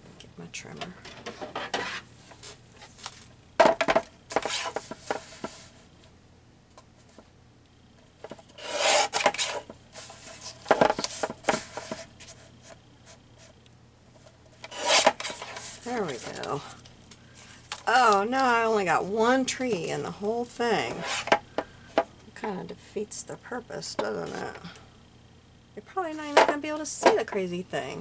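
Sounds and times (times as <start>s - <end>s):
paper rustling and scraping: 1.3s - 3.3s, 3.9s - 5.9s, 8.3s - 13.6s, 14.6s - 16.8s, 19.7s - 21.4s.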